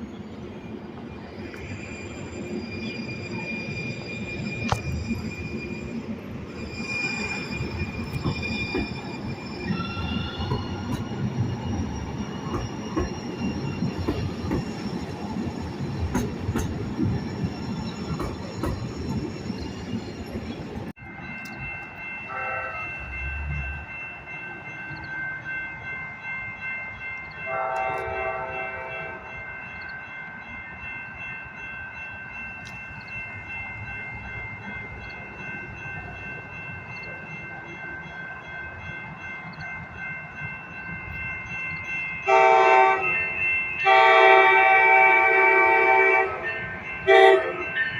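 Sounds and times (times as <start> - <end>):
high wheel squeals: 0.0 - 20.9
train wheels rumbling on rails: 0.0 - 30.0
train horn: 22.3 - 23.0, 27.5 - 29.2, 42.3 - 43.2, 43.8 - 47.7.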